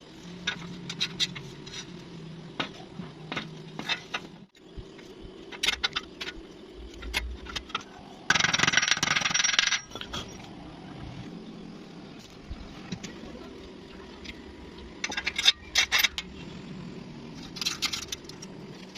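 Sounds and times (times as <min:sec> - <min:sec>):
metal parts clinking: 0:05.5 - 0:10.6, 0:15.0 - 0:16.4, 0:17.4 - 0:18.9.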